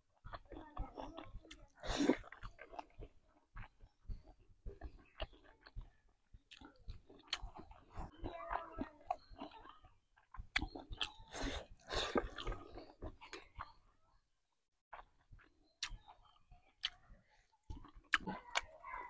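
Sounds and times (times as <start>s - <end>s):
person chewing food: 0.0s - 14.1s, 14.9s - 19.0s
mouth clicks: 0.3s - 13.8s, 14.9s - 19.0s.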